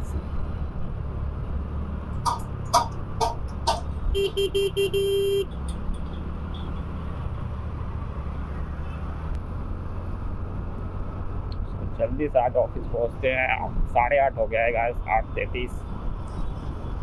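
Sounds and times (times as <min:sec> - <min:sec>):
motorcycle rumble: 0:00.0 - 0:17.0
high-pitched horn beeps: 0:02.3 - 0:05.5
vehicle horn honking: 0:02.3 - 0:05.5.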